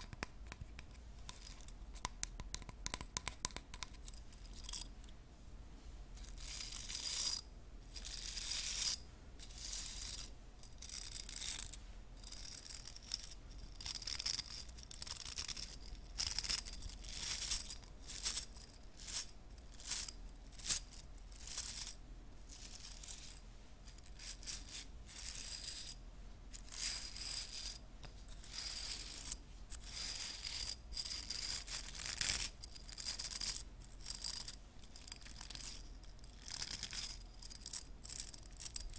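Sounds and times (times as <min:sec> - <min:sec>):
hairbrush bristles scratching: 0:06.2 - 0:18.5.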